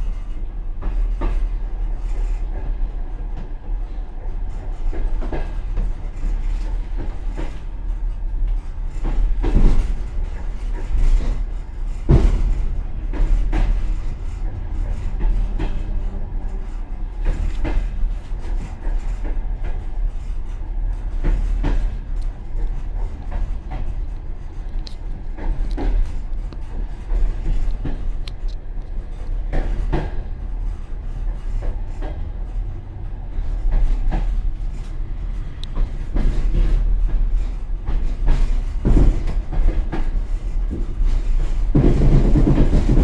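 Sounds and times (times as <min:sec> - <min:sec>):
train car rumbling: 0:00.0 - 0:43.0.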